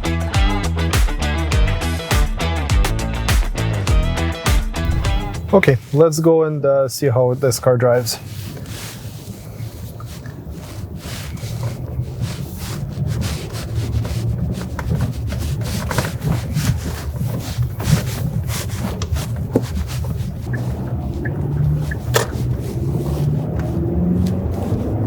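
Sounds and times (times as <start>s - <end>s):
car engine and tyres rumbling: 4.8s - 5.8s, 7.6s - 25.0s.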